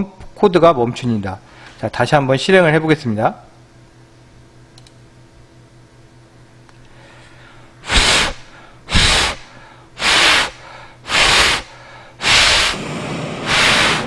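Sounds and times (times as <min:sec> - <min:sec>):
breath blown onto microphone: 0:07.8 - 0:14.0.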